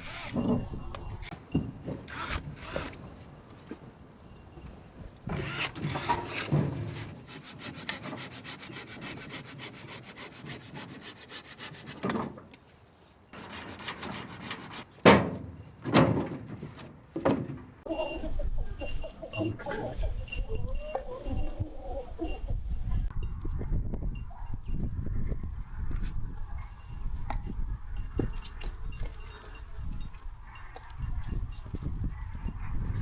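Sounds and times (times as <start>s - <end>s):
rapid even scraping strokes: 5.4s - 12.2s, 13.4s - 15.0s.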